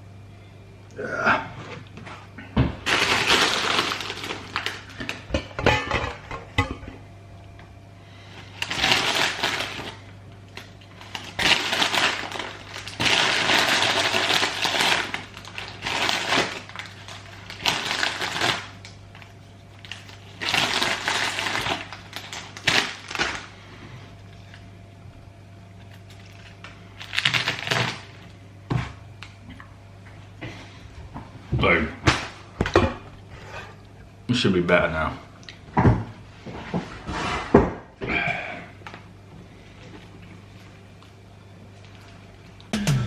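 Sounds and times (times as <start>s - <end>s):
crisps and packet crunching: 2.8s - 5.3s, 8.5s - 23.6s, 25.8s - 28.3s.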